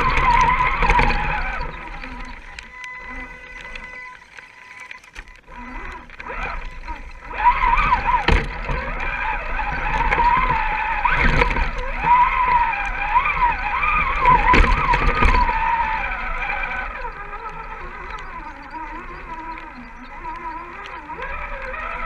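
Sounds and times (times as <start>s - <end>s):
electric motor whining: 0.0s - 22.0s.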